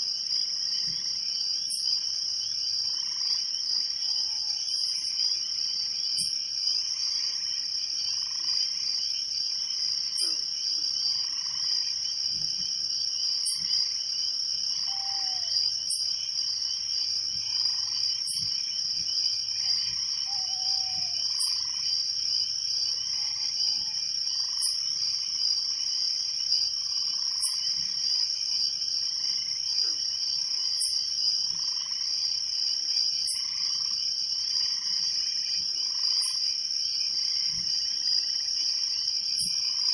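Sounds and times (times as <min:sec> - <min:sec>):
crickets trilling: 0:00.0 - 0:39.9
frogs calling: 0:01.7 - 0:12.2, 0:13.2 - 0:28.3, 0:29.2 - 0:32.4, 0:33.2 - 0:35.2.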